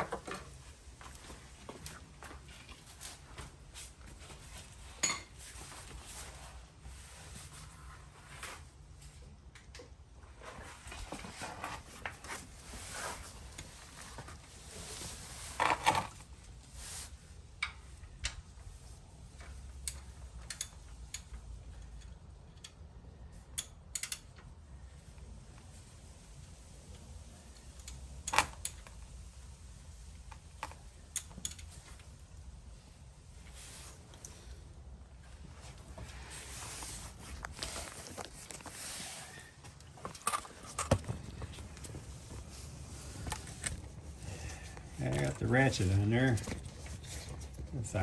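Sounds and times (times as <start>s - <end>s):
ratchet clicks: 19.8s - 21.3s, 23.6s - 24.3s
rustling: 31.7s - 48.0s.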